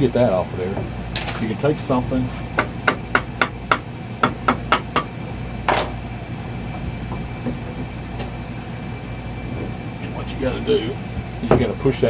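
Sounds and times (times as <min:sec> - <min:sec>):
steady low hum: 0:00.0 - 0:12.0
hammer tapping on metal: 0:02.6 - 0:05.1.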